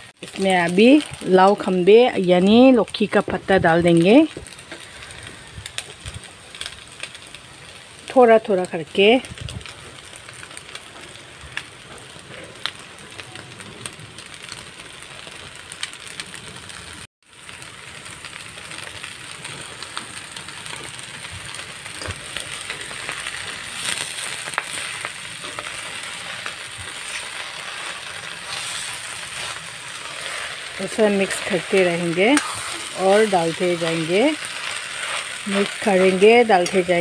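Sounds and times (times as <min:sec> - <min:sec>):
food sizzling in a wok: 0:00.0 - 0:37.0
metal spatula scraping a pan: 0:22.6 - 0:37.0.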